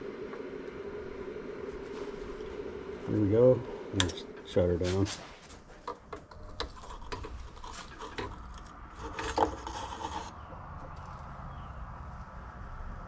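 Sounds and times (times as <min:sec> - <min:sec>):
low steady hum: 0:00.0 - 0:13.0
rasping scrape: 0:04.8 - 0:10.3.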